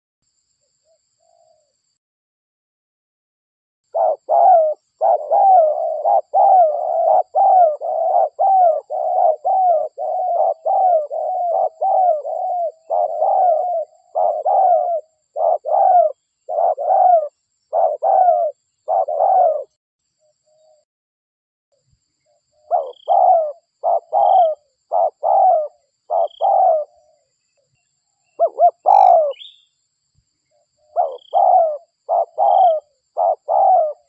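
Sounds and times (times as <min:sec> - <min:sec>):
dove cooing: 0:03.9 - 0:19.8, 0:22.3 - 0:27.3, 0:28.4 - 0:29.6, 0:30.8 - 0:34.0.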